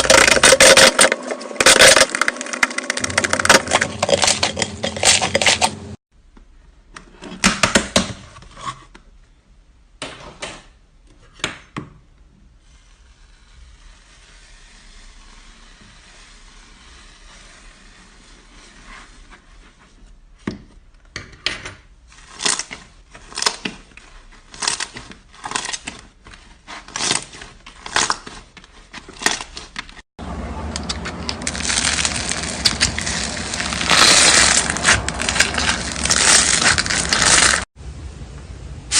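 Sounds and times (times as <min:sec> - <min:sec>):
slime crackling squishes: 0:30.9 - 0:37.7.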